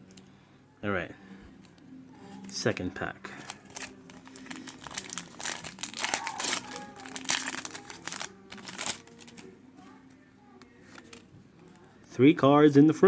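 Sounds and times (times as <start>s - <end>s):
foil wrapper crinkling: 2.4s - 9.5s, 10.8s - 11.8s.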